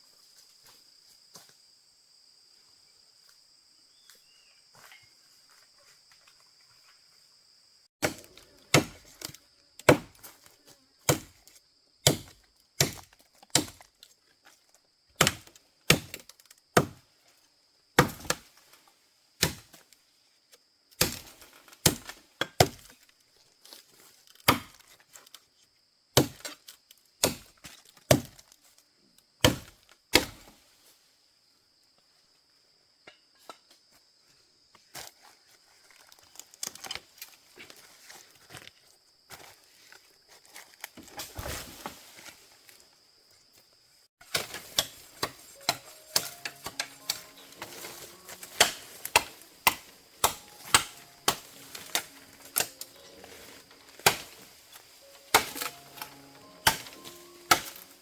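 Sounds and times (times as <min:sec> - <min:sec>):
crickets trilling: 0:00.0 - 0:58.0
tool striking wood: 0:44.3 - 0:53.0, 0:53.9 - 0:54.5, 0:55.1 - 0:58.0.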